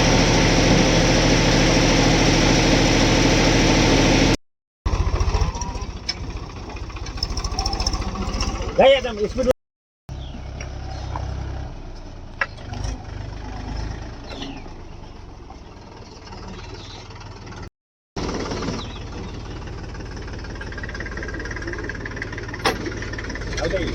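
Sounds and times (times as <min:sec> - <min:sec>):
diesel engine idling: 0:00.0 - 0:09.5, 0:14.6 - 0:23.9.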